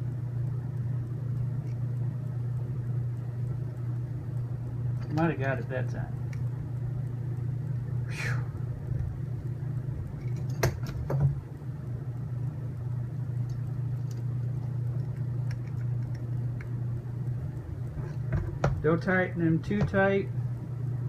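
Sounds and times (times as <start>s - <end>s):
steady low hum: 0.0s - 21.0s
person exhaling: 8.1s - 8.6s.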